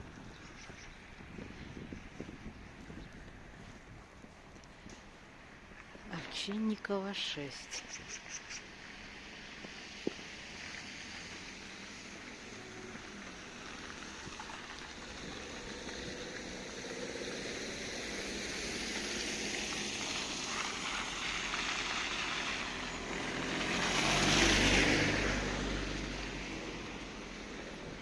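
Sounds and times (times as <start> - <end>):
car driving past: 8.9 - 28.0.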